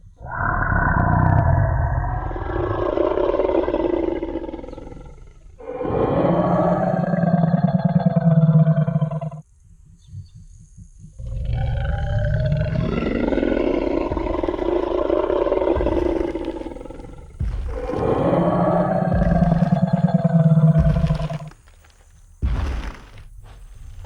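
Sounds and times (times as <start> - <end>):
low rumbling growl: 0.0 - 21.6
dinosaur roar: 0.1 - 9.4, 10.1 - 21.6.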